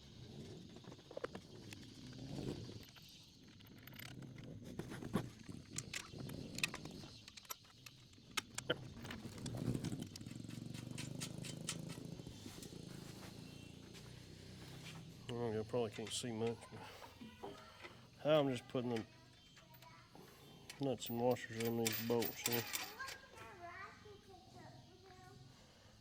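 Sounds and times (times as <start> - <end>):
metal parts clicking and tapping: 5.2 - 12.7, 15.7 - 23.4.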